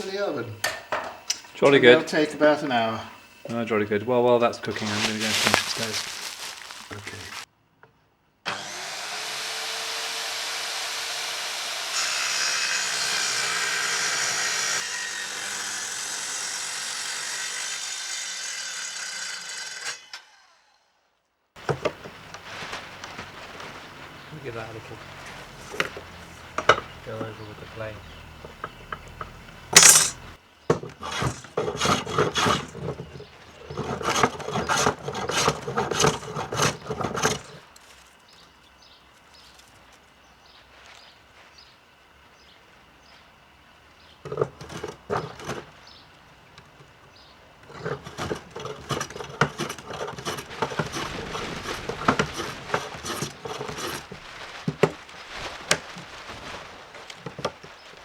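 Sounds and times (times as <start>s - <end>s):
hand tool scraping wood: 4.7s - 7.5s, 21.6s - 38.0s, 44.3s - 45.8s, 47.6s - 57.8s.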